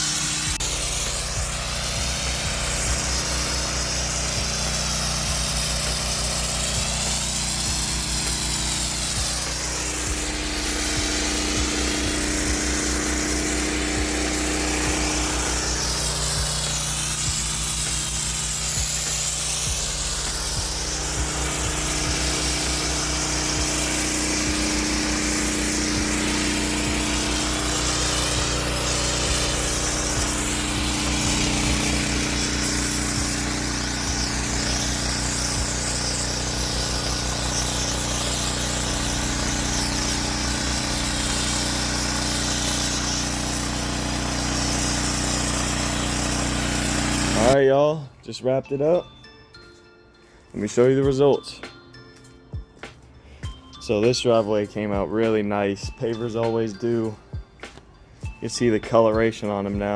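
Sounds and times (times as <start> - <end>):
gas engine running steadily: 0.0 - 47.6
high-pressure water spraying on stones: 0.0 - 47.6.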